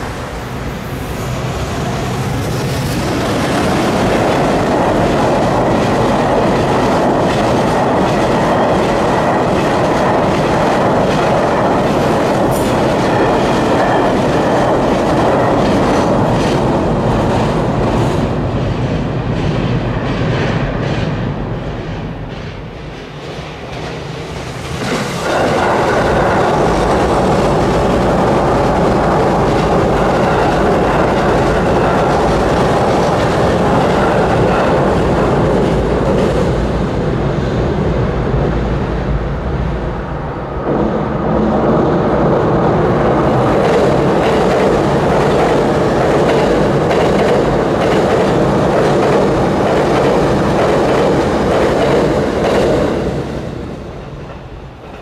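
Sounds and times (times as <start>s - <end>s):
train wheels rumbling on bridge: 0.0s - 55.0s
clickety-clack of rail joints: 1.8s - 37.1s, 42.9s - 55.0s.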